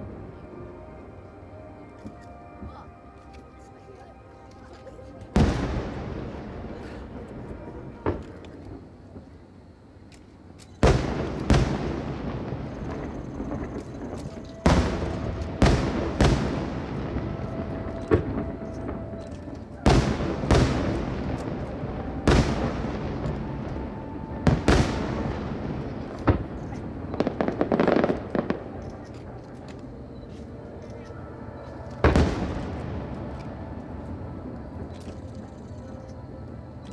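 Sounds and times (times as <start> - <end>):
firework crackling: 4.8 - 9.6, 10.4 - 30.0, 32.0 - 34.9
firework bangs echoing: 5.4 - 8.9, 10.8 - 19.2, 19.8 - 28.8, 32.0 - 33.4.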